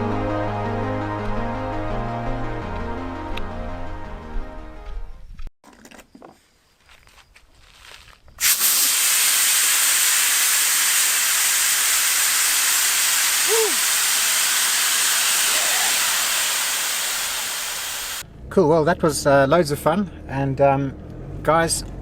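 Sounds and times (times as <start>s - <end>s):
loud hiss of rushing water: 8.4s - 18.2s.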